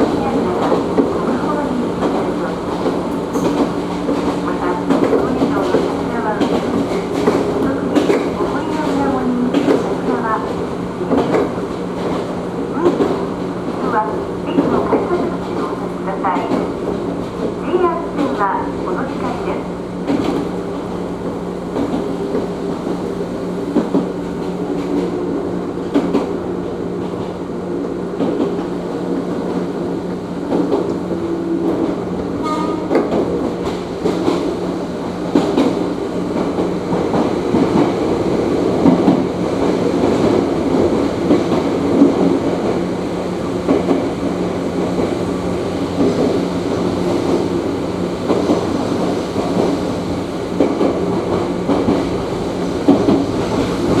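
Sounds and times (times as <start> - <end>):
train wheels clattering over rail joints: 0.0 - 13.8
train hum and rumble: 0.0 - 54.0.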